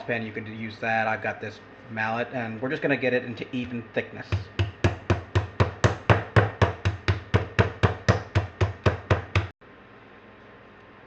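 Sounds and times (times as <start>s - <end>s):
meat mallet pounding in plastic bag: 4.3s - 9.5s.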